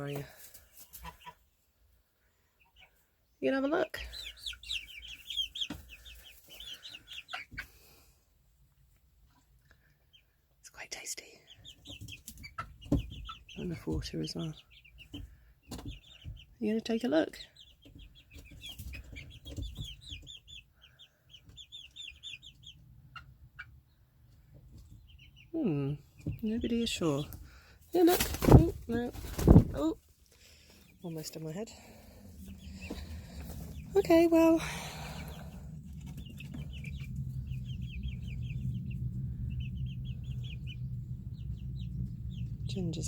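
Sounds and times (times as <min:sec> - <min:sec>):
chicks peeping: 0:00.0 - 0:43.0
steady low hum: 0:31.6 - 0:43.0.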